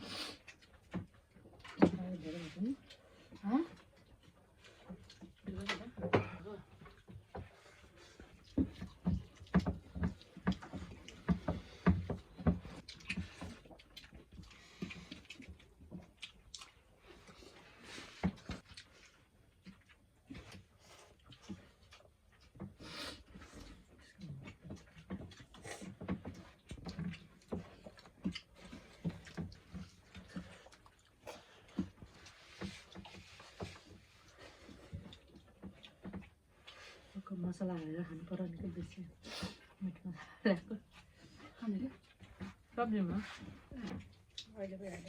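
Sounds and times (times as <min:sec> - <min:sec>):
chewing and lip-smacking: 0:00.1 - 0:38.2, 0:40.8 - 0:45.0
person eating: 0:06.2 - 0:23.9, 0:24.5 - 0:37.1.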